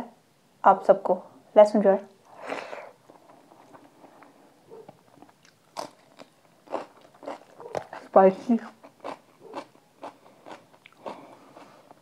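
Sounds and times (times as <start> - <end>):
wet chewing: 2.3 - 12.0
sharp food crunches: 5.1 - 12.0.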